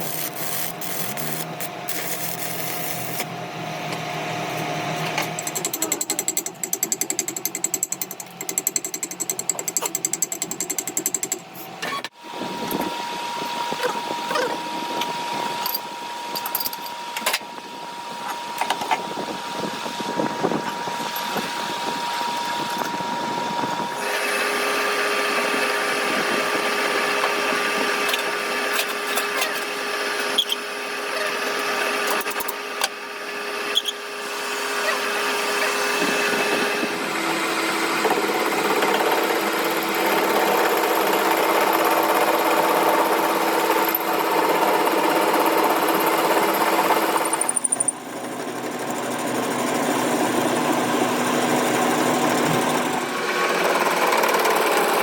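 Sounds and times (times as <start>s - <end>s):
power tool motor whining: 0.0s - 3.3s.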